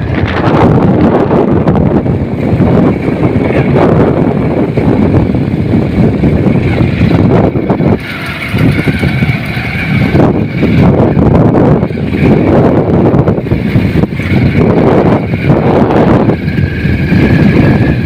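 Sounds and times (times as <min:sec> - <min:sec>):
road and engine noise: 0:00.0 - 0:18.0
thin high whine: 0:00.0 - 0:18.0
wind buffeting microphone: 0:00.0 - 0:18.0.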